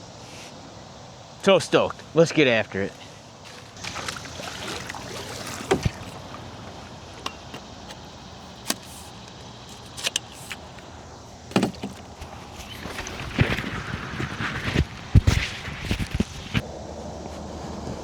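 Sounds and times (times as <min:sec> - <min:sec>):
water wash from paddling: 0:02.1 - 0:09.9, 0:10.7 - 0:16.6
paddle knocking against hull: 0:03.5 - 0:08.7, 0:11.5 - 0:15.6.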